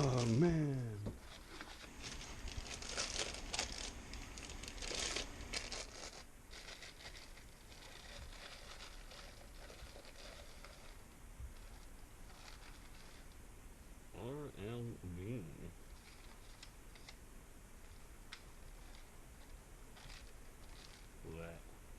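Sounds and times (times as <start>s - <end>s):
packaging tearing and crinkling: 0.0s - 13.4s, 16.0s - 17.2s, 18.3s - 21.2s.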